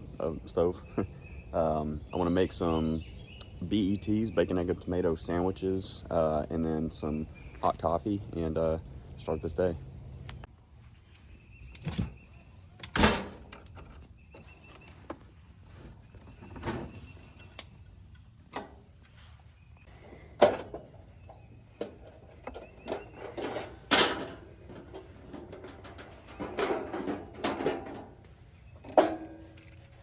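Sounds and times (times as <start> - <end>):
camp cooking gear clattering: 16.2 - 18.9, 20.0 - 30.0.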